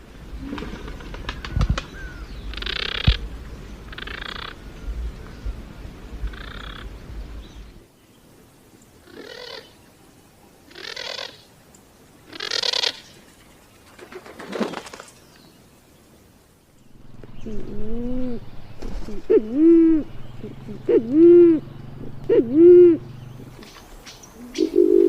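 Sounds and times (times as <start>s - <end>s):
rasping pigeon calls: 12.3s - 13.1s, 17.4s - 23.8s, 24.4s - 25.0s.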